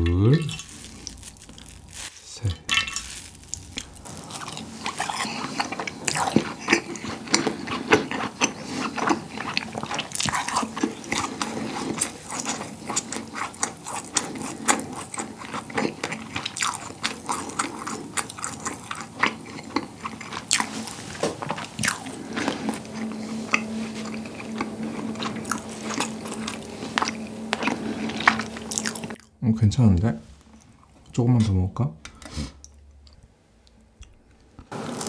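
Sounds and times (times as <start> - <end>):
steady low hum: 0.3 - 16.0, 16.6 - 31.2
close chewing mouth clicks: 3.5 - 20.7.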